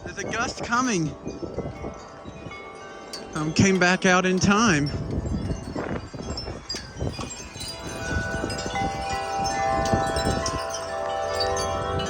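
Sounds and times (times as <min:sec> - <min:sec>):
low wind rumble: 0:00.0 - 0:12.0
wind chimes ringing: 0:00.0 - 0:12.0.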